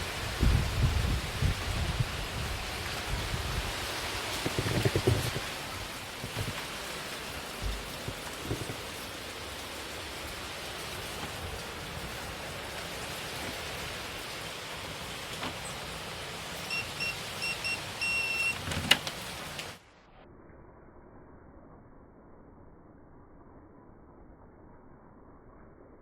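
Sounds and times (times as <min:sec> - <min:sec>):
heavy rain hissing: 0:00.0 - 0:19.9
high electronic beeps: 0:16.7 - 0:18.6.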